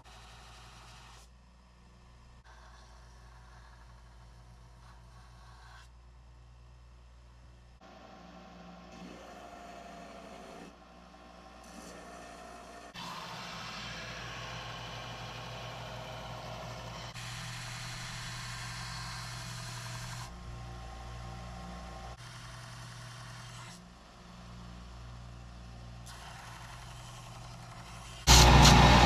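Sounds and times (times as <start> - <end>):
electric sander grinding steel: 11.6 - 22.4, 26.6 - 29.0.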